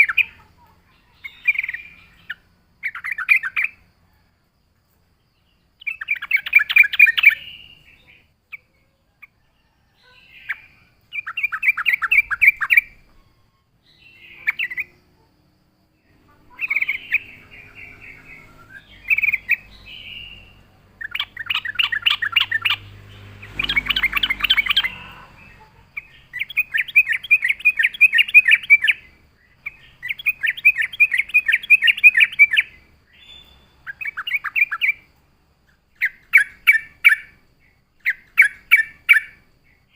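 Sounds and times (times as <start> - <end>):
bird singing bubbly chattering phrases: 0.0 - 3.8, 5.8 - 9.4, 10.2 - 13.0, 13.9 - 15.0, 16.1 - 35.1.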